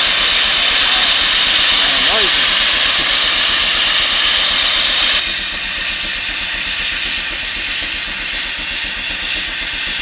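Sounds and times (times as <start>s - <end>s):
steam hissing: 0.0s - 10.0s.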